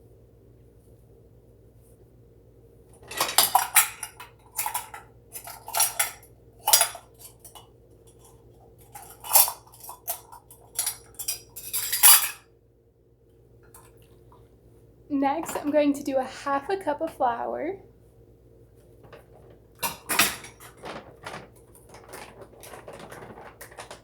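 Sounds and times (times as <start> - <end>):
utensils clinking against bowl: 3.0 - 12.4, 19.0 - 21.4.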